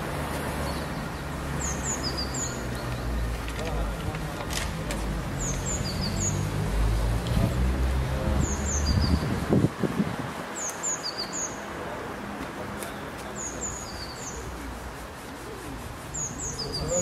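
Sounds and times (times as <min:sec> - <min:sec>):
outdoor background noise: 0:00.0 - 0:17.0
small birds chirping: 0:00.5 - 0:04.3, 0:05.2 - 0:07.7, 0:10.5 - 0:11.7, 0:12.8 - 0:17.0.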